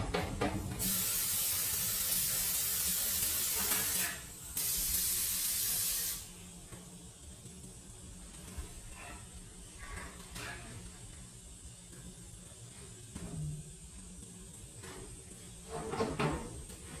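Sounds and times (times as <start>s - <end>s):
pressurised spray hissing: 0.8s - 6.3s.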